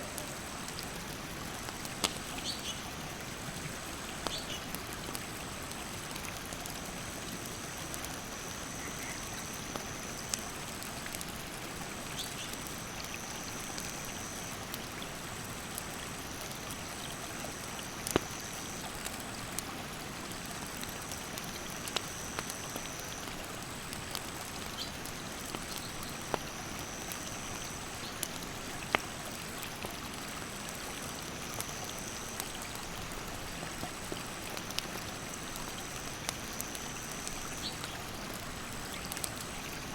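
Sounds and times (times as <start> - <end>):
campfire crackling and popping: 0.0 - 39.9
insects calling in pulses: 7.8 - 10.3.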